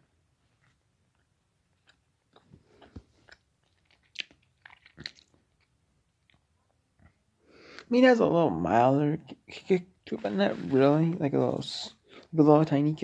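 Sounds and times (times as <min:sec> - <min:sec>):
person chewing meat snack: 0:00.6 - 0:07.2
wet mouth clicks: 0:01.8 - 0:05.7.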